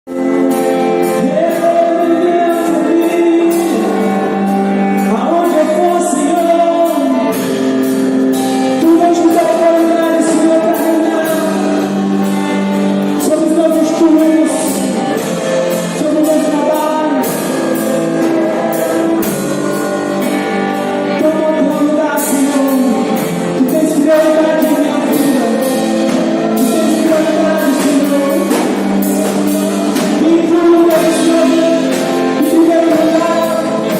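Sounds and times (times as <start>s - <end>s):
band playing: 0.0s - 33.9s
person singing: 0.1s - 33.9s
steady drum beat: 0.2s - 33.9s.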